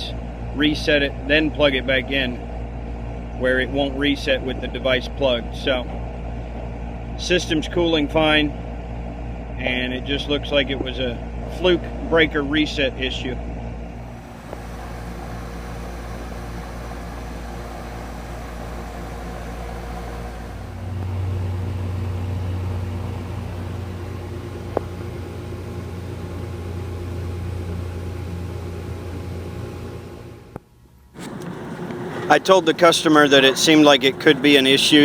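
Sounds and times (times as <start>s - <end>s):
air conditioner humming: 31.2s - 35.0s.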